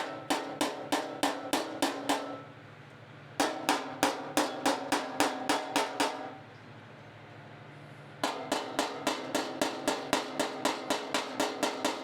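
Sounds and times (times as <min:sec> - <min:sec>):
hammer striking sheet metal: 0:08.2 - 0:12.0.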